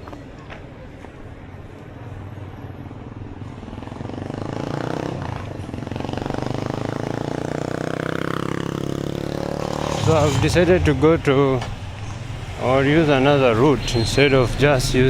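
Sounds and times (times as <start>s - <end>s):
vehicle engine passing by: 4.2s - 15.0s.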